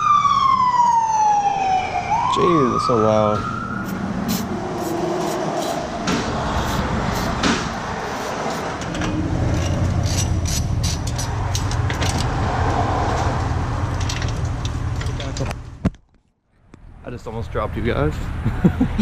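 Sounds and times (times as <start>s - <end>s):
low mechanical rumble: 3.7s - 15.8s
tools and metal parts clicking: 8.1s - 12.3s.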